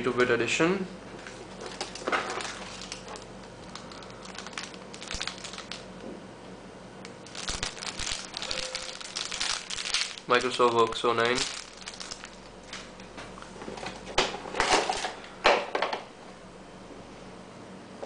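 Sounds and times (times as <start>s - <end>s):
plastic packaging crinkling: 1.3s - 6.0s, 7.2s - 13.2s.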